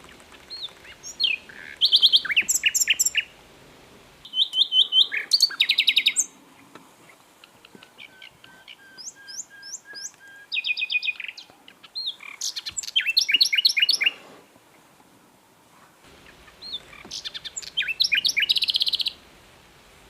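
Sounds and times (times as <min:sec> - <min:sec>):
nightingale singing: 0:00.0 - 0:03.4, 0:04.2 - 0:06.4, 0:07.0 - 0:14.2, 0:16.1 - 0:19.2.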